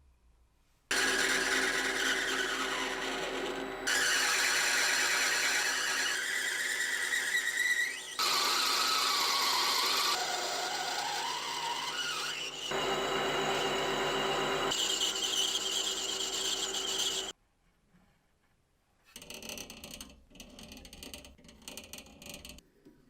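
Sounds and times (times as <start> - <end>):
rotary power tool squealing on metal: 0.9 - 17.3.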